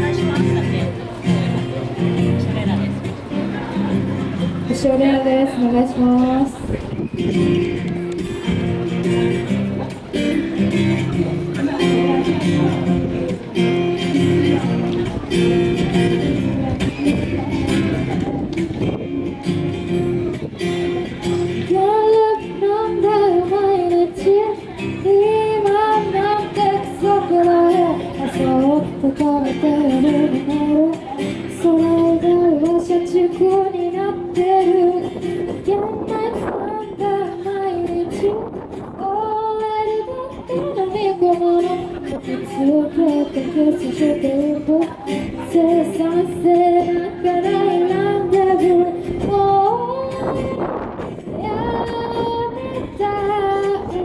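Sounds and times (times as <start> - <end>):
strummed acoustic guitar: 0.0 - 54.0
woman singing: 4.7 - 7.5, 15.7 - 54.0.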